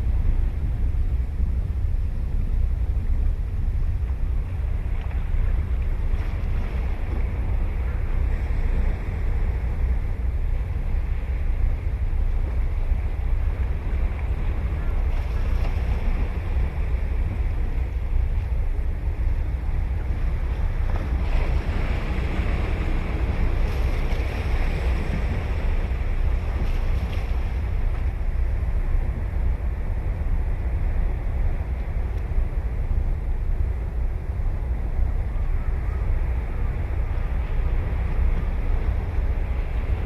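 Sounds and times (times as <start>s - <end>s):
wind rumble on microphone: 0.0s - 40.0s
ocean surf breaking: 4.6s - 34.4s.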